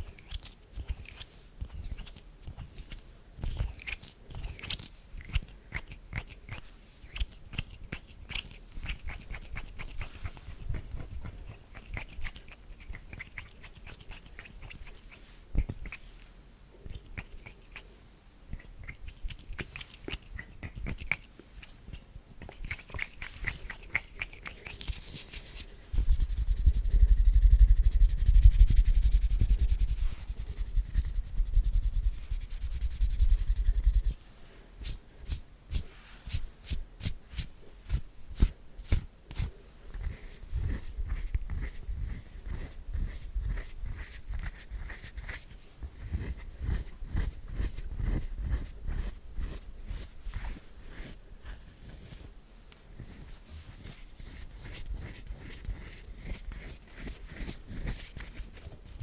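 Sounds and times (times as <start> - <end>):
palms rubbing together: 21.7 - 34.2.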